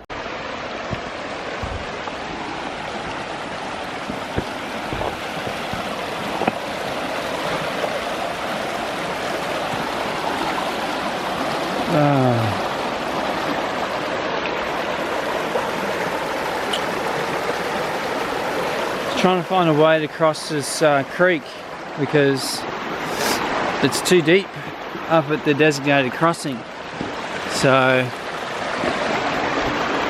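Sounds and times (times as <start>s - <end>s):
creek water flowing: 0.0s - 30.0s
falling vocal sigh: 11.9s - 12.6s.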